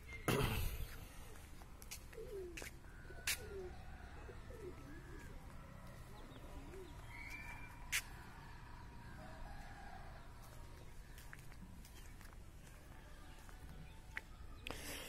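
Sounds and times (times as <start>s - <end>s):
birds calling faintly: 0.0s - 8.8s.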